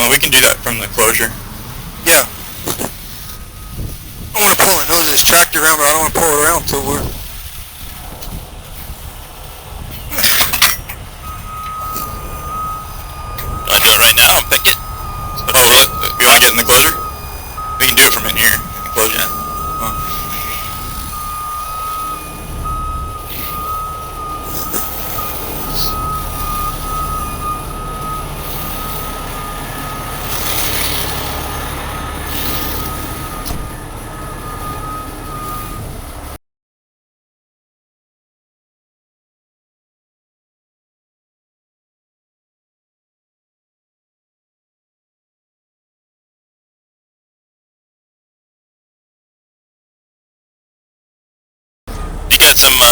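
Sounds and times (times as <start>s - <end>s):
reversing alarm beeping: 0.0s - 7.3s, 9.0s - 36.4s, 51.9s - 52.9s
tow trucks idling: 0.0s - 36.4s, 51.9s - 52.9s.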